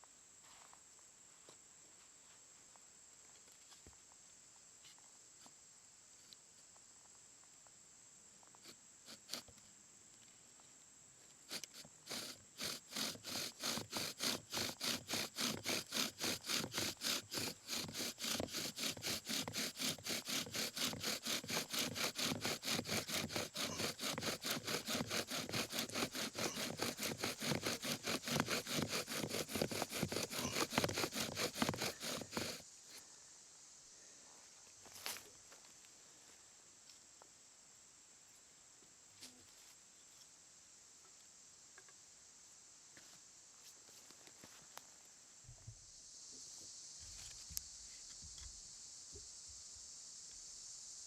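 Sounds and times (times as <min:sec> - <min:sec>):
bow drill spindle grinding wood: 0:08.6 - 0:09.6, 0:11.4 - 0:32.7.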